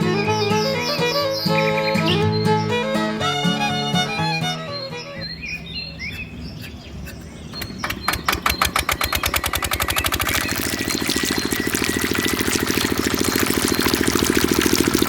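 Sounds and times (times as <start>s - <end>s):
birds chirping faintly: 0.0s - 15.0s
small diesel engine popping: 6.2s - 15.0s.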